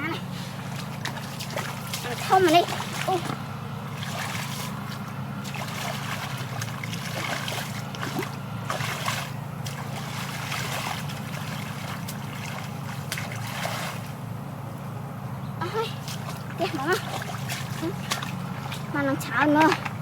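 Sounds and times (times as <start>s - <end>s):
steady low hum: 0.0s - 20.0s
water splashing in mud: 0.5s - 14.2s, 15.9s - 20.0s.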